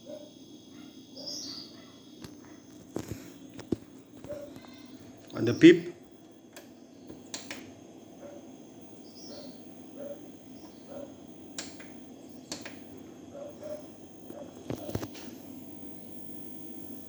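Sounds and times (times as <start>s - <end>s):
low steady hum: 0.0s - 17.0s
sharp clicks: 6.5s - 7.7s, 11.6s - 12.9s.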